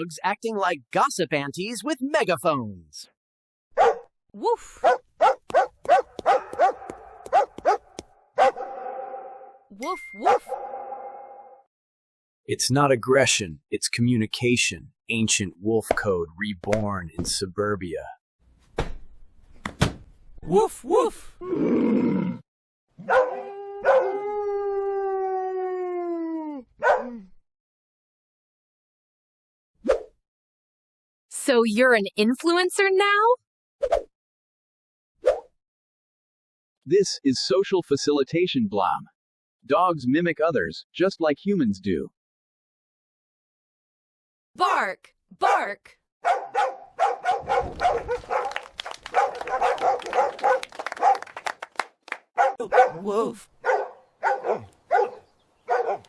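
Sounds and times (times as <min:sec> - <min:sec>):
dog barking: 0:03.8 - 0:04.1, 0:04.8 - 0:09.6, 0:10.2 - 0:11.6, 0:23.0 - 0:24.2, 0:26.8 - 0:27.2, 0:46.2 - 0:51.4, 0:52.4 - 0:56.0
dog yelping: 0:03.8 - 0:04.1, 0:04.8 - 0:09.6, 0:23.0 - 0:24.3, 0:26.8 - 0:27.2, 0:46.2 - 0:51.2, 0:52.4 - 0:56.0
dog howling: 0:08.4 - 0:09.6, 0:10.4 - 0:11.6, 0:23.0 - 0:27.2, 0:46.3 - 0:51.2.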